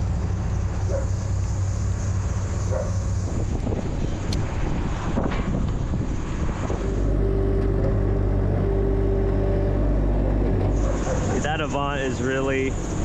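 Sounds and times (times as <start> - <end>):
machine engine running: 6.7 - 13.0.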